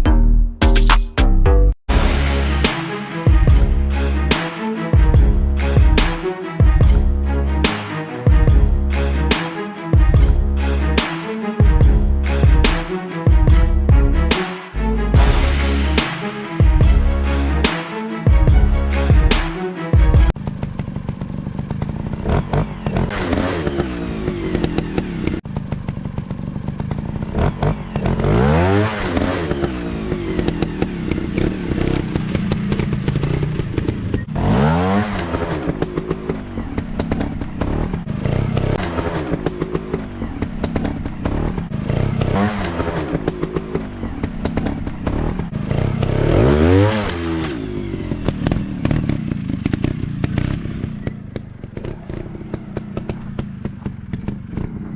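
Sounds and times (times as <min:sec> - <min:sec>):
motorcycle engines revving: 0:20.2 - 0:54.9.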